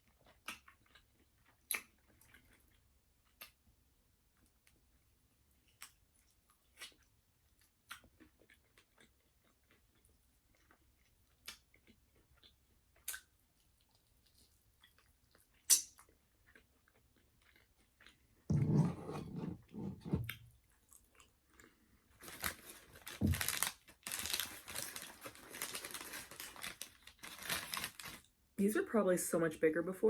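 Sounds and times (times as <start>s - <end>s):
person chewing crunchy food: 5.6s - 18.5s.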